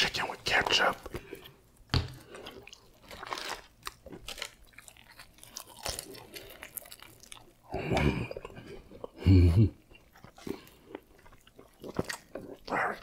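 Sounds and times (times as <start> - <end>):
crunchy chewing of fried chicken: 2.2 - 9.2, 9.8 - 13.0.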